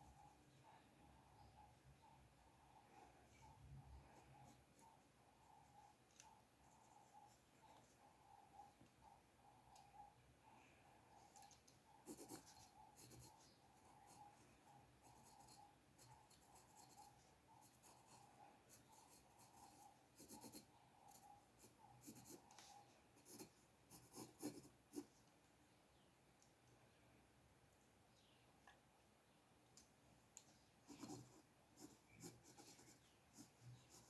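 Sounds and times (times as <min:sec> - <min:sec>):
drawing tool scratching paper: 0:12.0 - 0:14.2.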